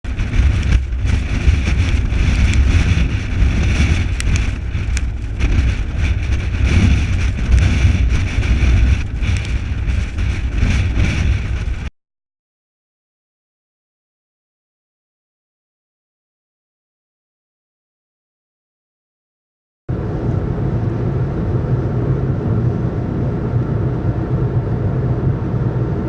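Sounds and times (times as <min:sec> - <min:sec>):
wind gusting over microphone: 0:00.0 - 0:11.9, 0:19.9 - 0:26.0
small ticks: 0:04.2 - 0:05.1.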